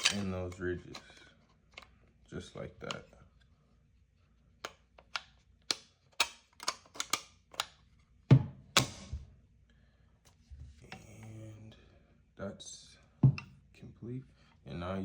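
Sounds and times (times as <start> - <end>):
sharp metal clicks: 4.6 - 7.8.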